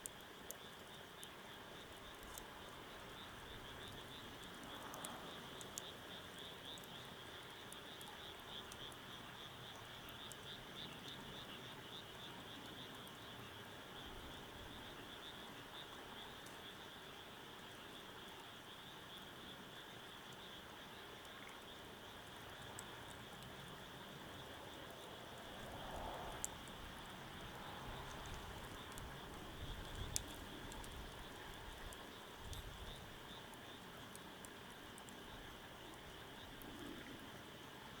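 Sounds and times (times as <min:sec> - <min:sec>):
faint ticks: 0:00.0 - 0:38.0
frogs and insects calling: 0:00.0 - 0:38.0
wood fire crackles: 0:25.2 - 0:37.4.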